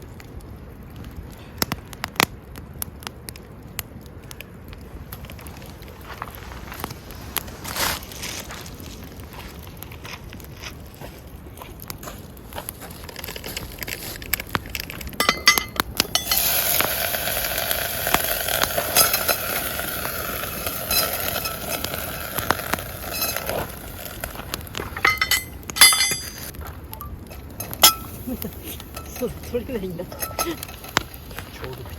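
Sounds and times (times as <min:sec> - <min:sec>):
camp cookware clinking: 0:15.1 - 0:31.8
steady hiss: 0:15.2 - 0:26.5, 0:27.2 - 0:31.9.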